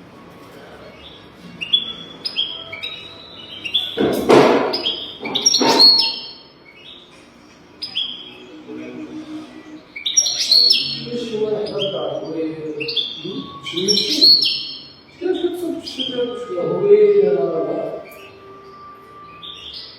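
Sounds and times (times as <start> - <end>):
finch singing: 0.9 - 19.9.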